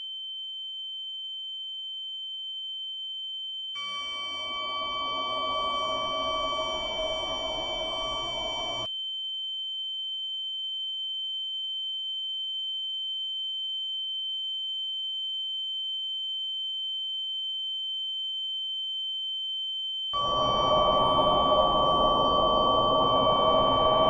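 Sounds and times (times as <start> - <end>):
high-pitched sine tone: 3.8 - 8.9, 20.2 - 24.0.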